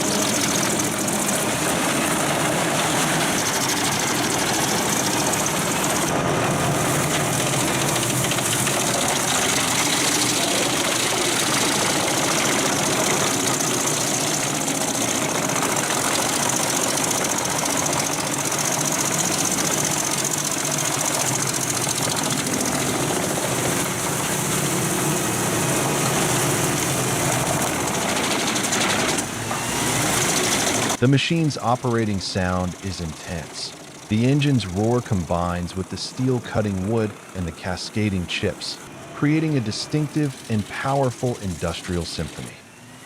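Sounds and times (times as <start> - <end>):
steel drum cutting logs: 0.0 - 31.0
wood chips blowing out: 0.0 - 31.1
wood chipper engine roaring: 0.0 - 43.0.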